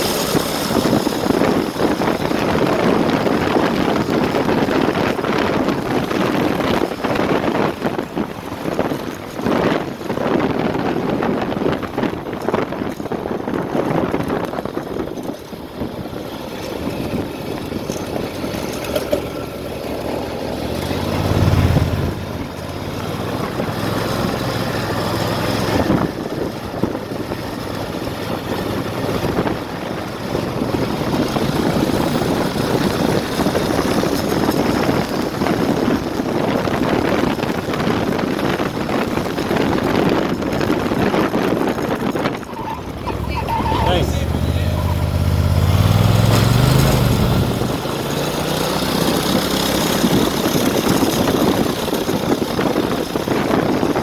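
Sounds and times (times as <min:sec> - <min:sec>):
go kart engine running: 0:00.0 - 0:54.0.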